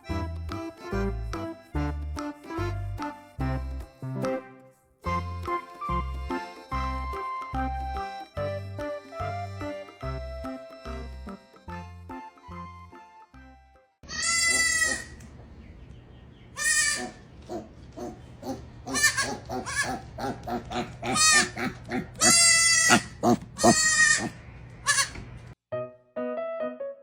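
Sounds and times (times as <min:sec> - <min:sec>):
piano music: 0:00.0 - 0:14.0, 0:25.7 - 0:27.0
animal crying out: 0:14.1 - 0:15.2, 0:16.6 - 0:25.2.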